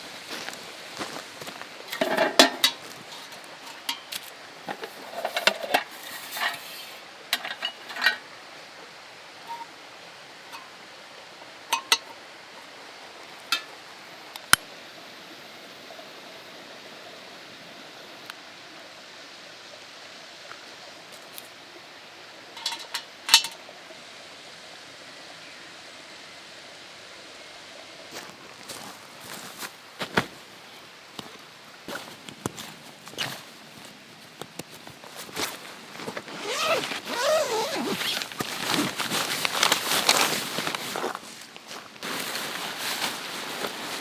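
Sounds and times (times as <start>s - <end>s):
faint steady hiss: 0.0s - 44.0s
cookware clinking and knocking: 2.0s - 2.8s, 7.4s - 8.2s, 22.6s - 23.6s.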